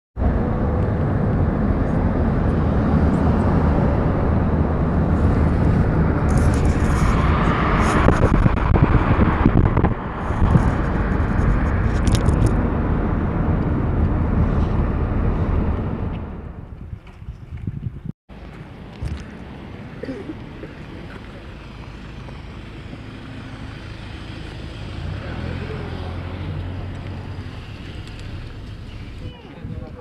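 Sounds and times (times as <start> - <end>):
wind buffeting microphone: 0.2 - 18.1, 27.0 - 30.0.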